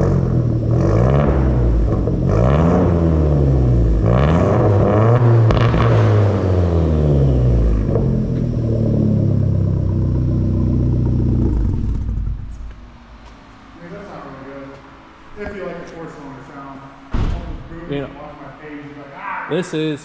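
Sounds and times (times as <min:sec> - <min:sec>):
car engine revving: 0:00.0 - 0:14.2
car engine idling: 0:00.0 - 0:19.0.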